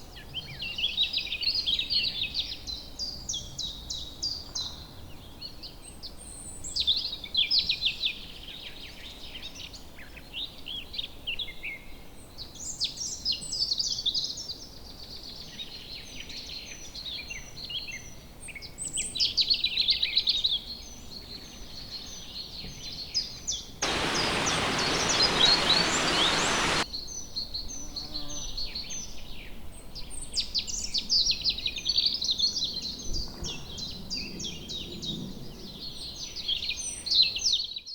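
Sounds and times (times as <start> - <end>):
songbirds singing and chirping: 23.8 - 26.8
steady rushing noise: 23.8 - 26.8.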